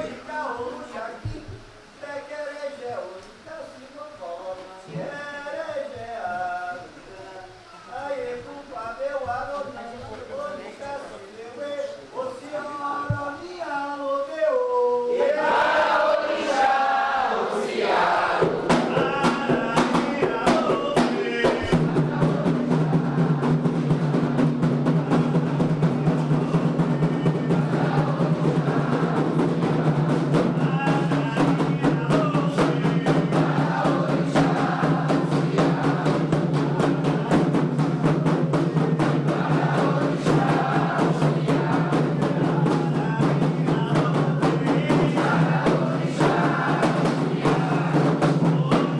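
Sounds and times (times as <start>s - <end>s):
group chanting: 15.0s - 48.9s
hand drums playing fast rhythm: 18.3s - 48.9s.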